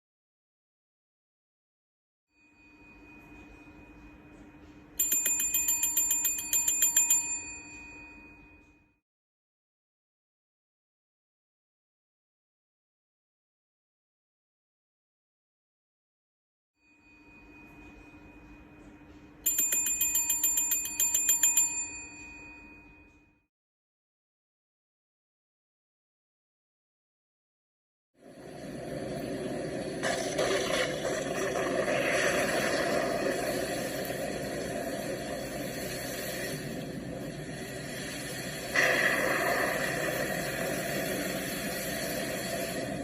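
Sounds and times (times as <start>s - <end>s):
small metal bell ringing rapidly: 5.0s - 8.6s, 19.4s - 23.1s
faint steady hum: 28.2s - 43.0s.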